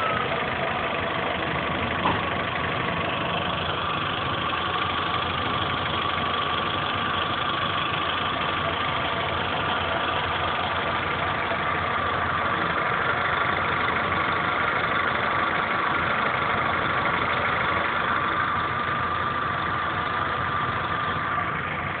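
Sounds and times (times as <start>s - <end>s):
car engine idling: 0.0s - 22.0s
rapid engine ticking: 0.0s - 22.0s.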